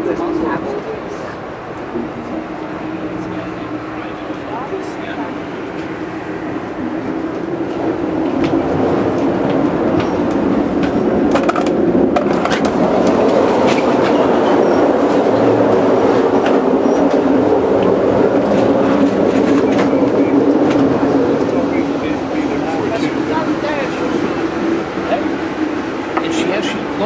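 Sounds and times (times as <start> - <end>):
train wheels rumbling on rail: 0.0 - 27.0
train car rattle: 5.6 - 26.8.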